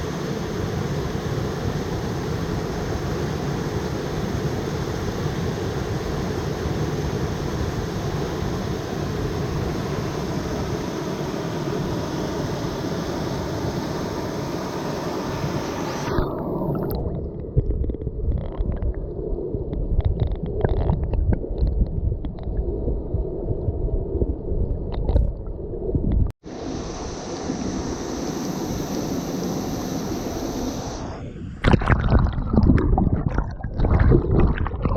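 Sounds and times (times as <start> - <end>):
underwater gurgling and rumbling: 16.1 - 26.4, 31.2 - 34.9.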